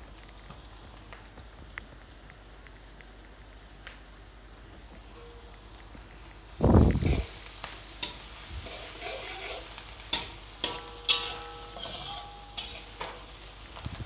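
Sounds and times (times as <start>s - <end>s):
onion sizzling in hot oil: 0.0s - 14.0s
metal spatula scraping wok: 8.0s - 13.4s.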